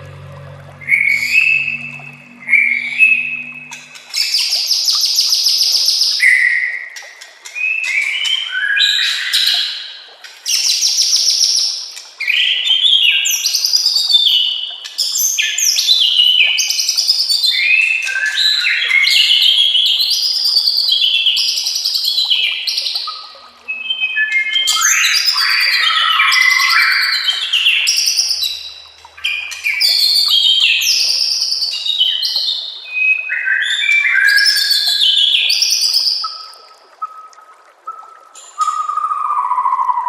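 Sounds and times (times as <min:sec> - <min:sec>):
bird singing whistled phrases: 0:17.4 - 0:28.7, 0:29.3 - 0:40.0.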